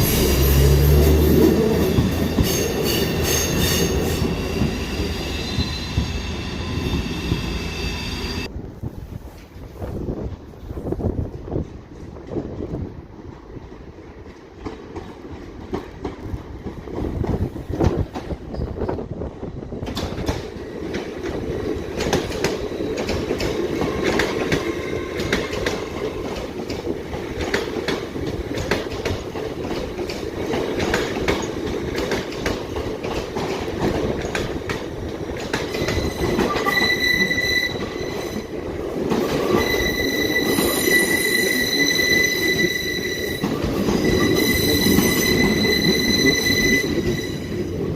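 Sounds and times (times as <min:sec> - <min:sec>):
train wheels clicking over rail joints: 0:00.0 - 0:07.5, 0:09.2 - 0:47.9
high wheel squeal: 0:00.0 - 0:08.5, 0:35.7 - 0:38.5, 0:39.3 - 0:47.9.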